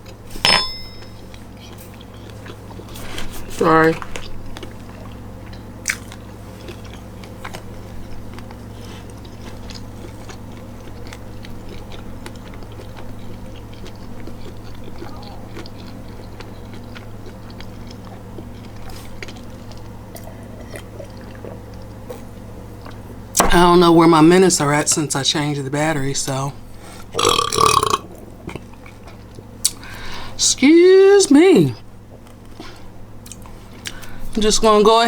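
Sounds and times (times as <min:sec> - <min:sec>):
steady low hum: 0:00.0 - 0:35.0
person chewing food: 0:01.2 - 0:23.2, 0:26.8 - 0:30.4, 0:32.0 - 0:34.2.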